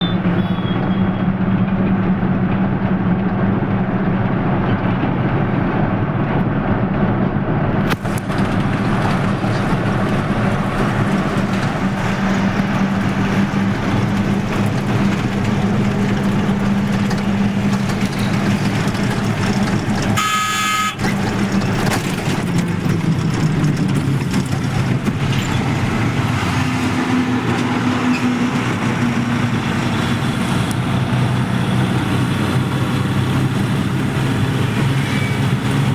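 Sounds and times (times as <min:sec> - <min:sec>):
vehicle horn: 0:00.0 - 0:01.2, 0:20.2 - 0:21.1
road noise: 0:00.0 - 0:35.9
vehicle engine drone: 0:00.0 - 0:35.9.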